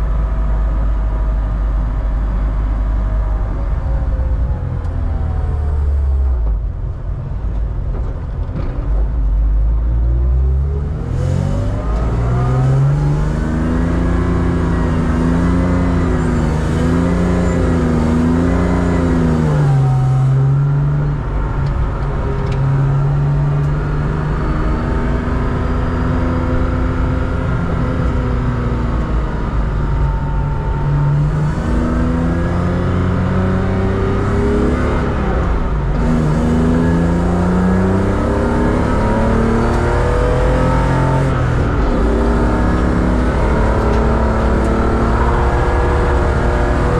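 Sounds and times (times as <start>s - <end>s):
race car engine revving: 10.0s - 46.9s.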